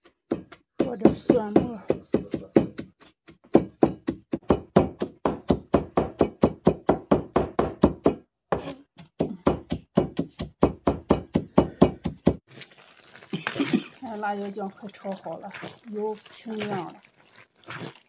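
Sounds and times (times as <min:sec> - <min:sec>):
cleaver chopping on cutting board: 0:00.3 - 0:08.2, 0:09.1 - 0:12.4.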